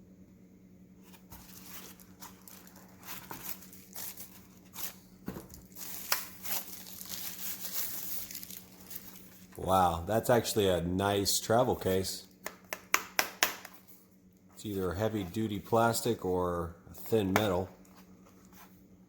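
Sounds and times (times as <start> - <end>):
plastic packaging crinkling: 1.1 - 9.6.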